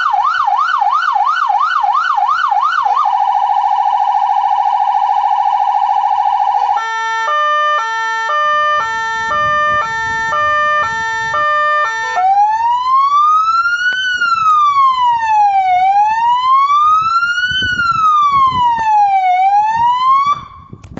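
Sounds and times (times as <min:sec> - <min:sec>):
fire engine siren: 0:00.0 - 0:20.8.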